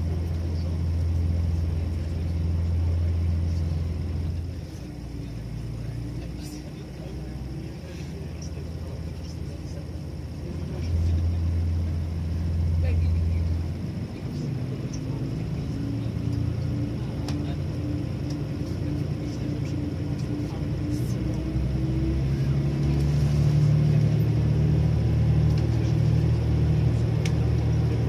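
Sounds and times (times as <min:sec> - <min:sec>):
electric train motor hum rising: 0:10.5 - 0:28.0.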